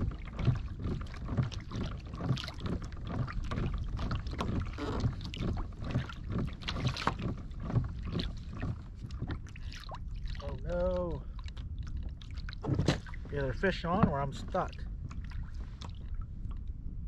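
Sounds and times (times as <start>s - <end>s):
water slapping against boat hull: 0.0s - 17.0s
wind rumble on microphone: 0.0s - 17.0s.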